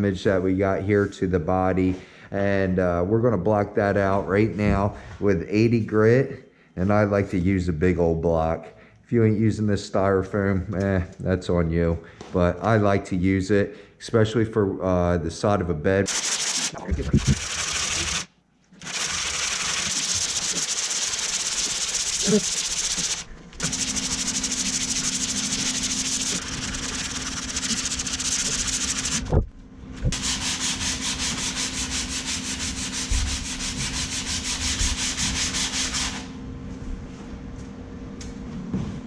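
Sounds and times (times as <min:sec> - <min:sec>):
sandpaper rasping on panel: 0:16.1 - 0:29.3, 0:30.1 - 0:36.3.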